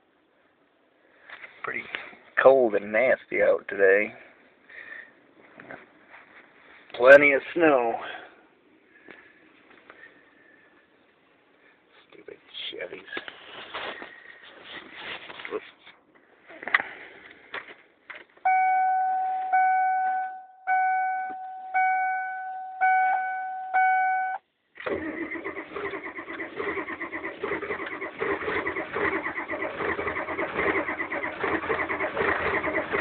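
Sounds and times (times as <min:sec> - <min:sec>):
repeating steady tone: 0:18.5 - 0:24.4
diesel engine starter cranking: 0:24.8 - 0:33.0.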